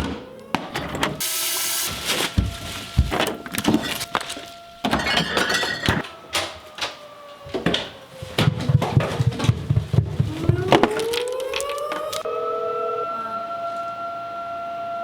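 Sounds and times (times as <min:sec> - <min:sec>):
warning siren wailing: 0:00.0 - 0:01.2, 0:01.9 - 0:15.0
objects clattering and knocking: 0:01.9 - 0:12.2.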